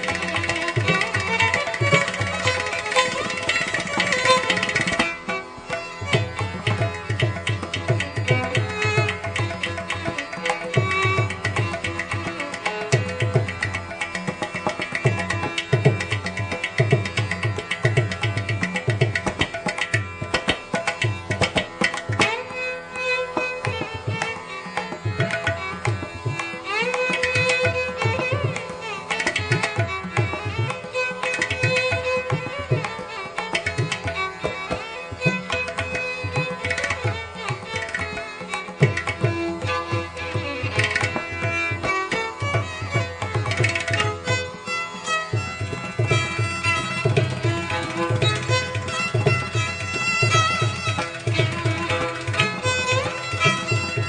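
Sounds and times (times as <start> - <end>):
string melody: 0.0 - 54.0
tabla drumming: 0.0 - 54.0.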